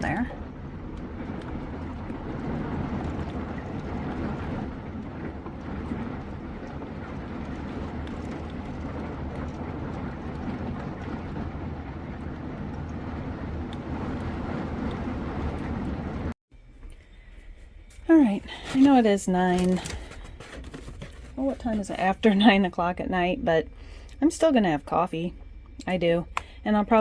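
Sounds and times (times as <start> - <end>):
raindrop ticks: 0.0 - 16.3, 25.4 - 26.6
heavy rain pouring: 0.0 - 16.4.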